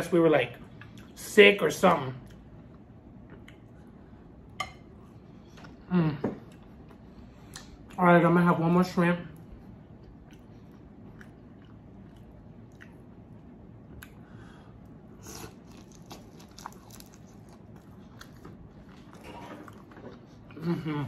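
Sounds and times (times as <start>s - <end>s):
crunchy chewing: 15.1s - 20.6s.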